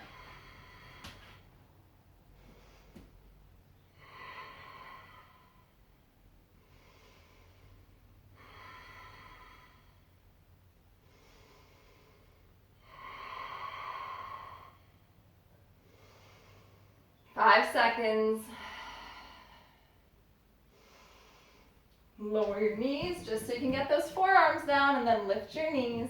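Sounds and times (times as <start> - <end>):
person breathing deeply: 11.0 - 15.1, 15.8 - 17.2, 18.5 - 21.8.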